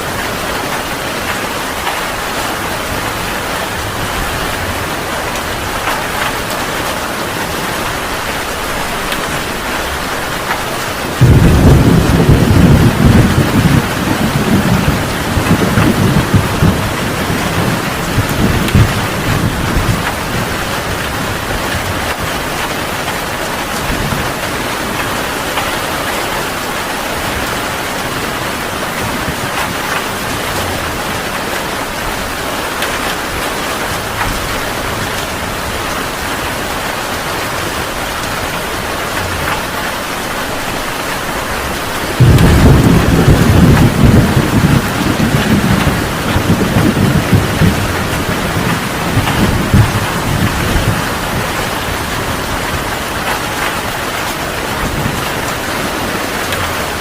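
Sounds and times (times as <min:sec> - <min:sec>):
heavy rain: 0:00.0 - 0:57.0
loud low thunder rumble: 0:11.1 - 0:22.2, 0:42.0 - 0:52.9.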